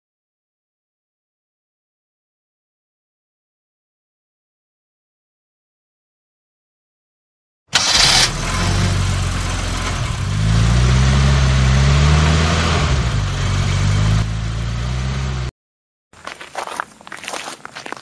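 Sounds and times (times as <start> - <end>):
engine starting and running: 7.7 - 15.5.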